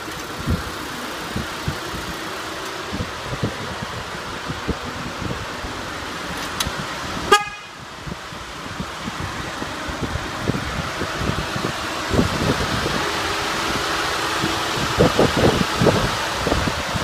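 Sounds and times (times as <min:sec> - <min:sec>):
car engine idling: 0:00.0 - 0:17.0
high-pitched car horn toot: 0:07.3 - 0:07.8.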